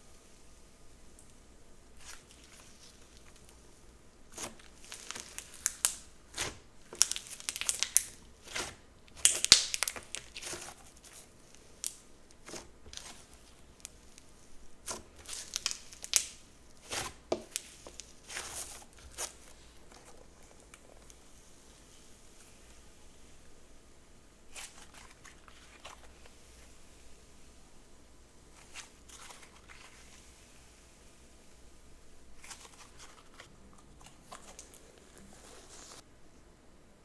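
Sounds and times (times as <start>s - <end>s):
slime crackling pops: 4.4s - 10.6s, 15.2s - 18.4s.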